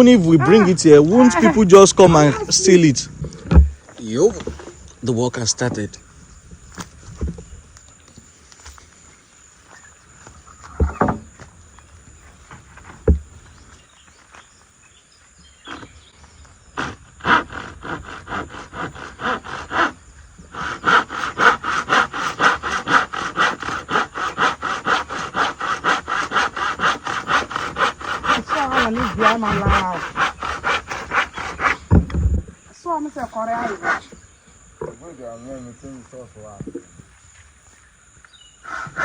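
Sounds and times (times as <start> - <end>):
handsaw cutting wood: 0.0 - 3.7, 16.8 - 32.1, 33.4 - 34.2, 38.6 - 39.0.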